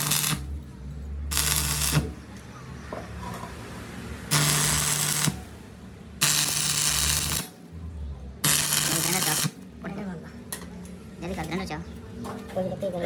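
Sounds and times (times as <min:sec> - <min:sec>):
workshop machine hissing: 0:00.0 - 0:00.6, 0:01.3 - 0:02.2, 0:04.3 - 0:05.6, 0:06.2 - 0:07.5, 0:08.4 - 0:09.6.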